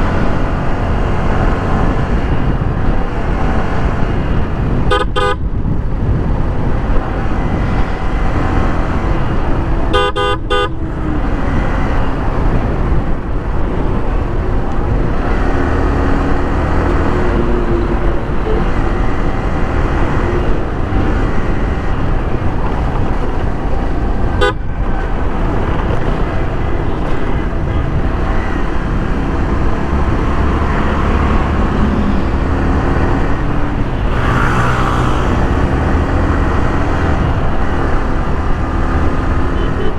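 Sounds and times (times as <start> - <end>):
road and traffic noise: 0.0 - 39.9
wind rumble on microphone: 0.0 - 39.9
vehicle horn honking: 4.9 - 5.5, 9.8 - 11.0, 24.1 - 25.1, 39.5 - 39.9.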